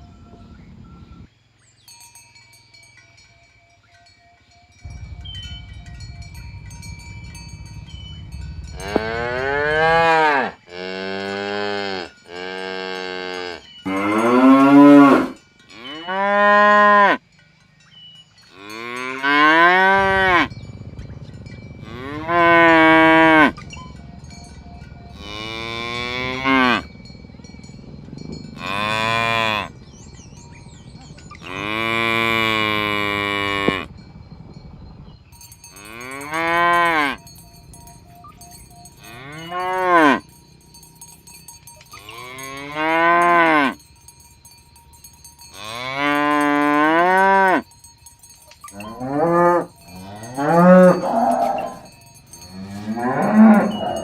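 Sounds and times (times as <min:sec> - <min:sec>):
cattle mooing: 0:08.7 - 0:17.2, 0:18.6 - 0:20.5, 0:21.8 - 0:23.6, 0:25.1 - 0:26.9, 0:28.6 - 0:29.7, 0:31.3 - 0:33.9, 0:39.0 - 0:40.3, 0:42.0 - 0:43.8, 0:48.7 - 0:51.9, 0:52.5 - 0:54.0.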